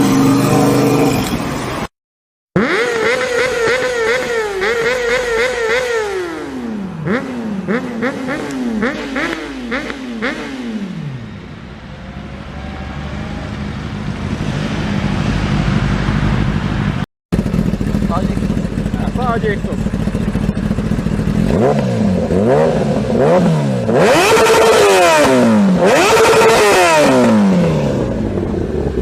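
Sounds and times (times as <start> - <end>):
motorcycle engine revving: 0.0 - 1.6, 2.6 - 29.0
rushing noise: 11.0 - 17.9
exhaust crackles: 12.3 - 24.6.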